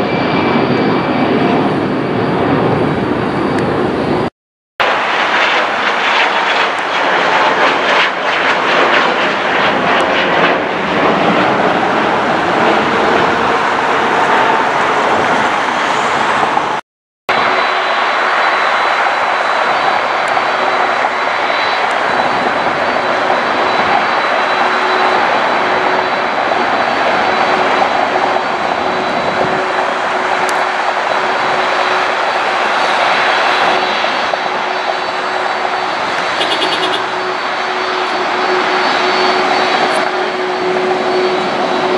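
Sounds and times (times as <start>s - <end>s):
jet airliner engines: 0.0s - 41.9s
faint high whine: 17.3s - 41.9s.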